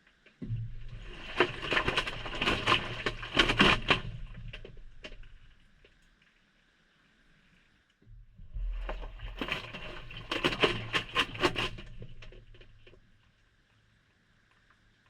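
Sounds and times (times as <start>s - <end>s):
wet laundry tumbling and splashing: 0.8s - 4.6s, 8.6s - 12.6s.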